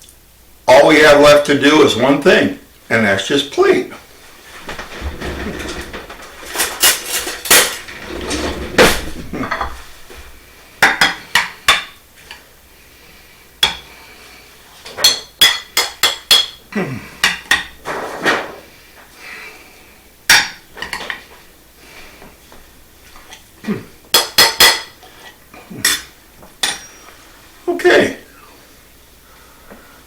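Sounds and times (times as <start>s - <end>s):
metal utensil scraping dishware: 5.0s - 9.8s, 24.2s - 27.1s.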